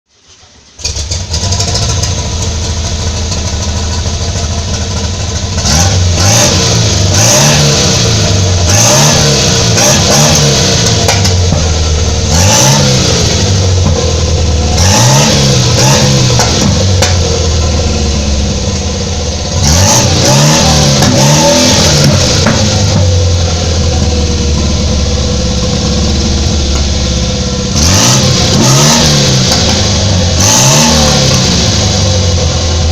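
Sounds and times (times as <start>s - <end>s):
car engine idling: 0.1s - 32.9s
engine revving in throttle blips: 4.6s - 32.9s.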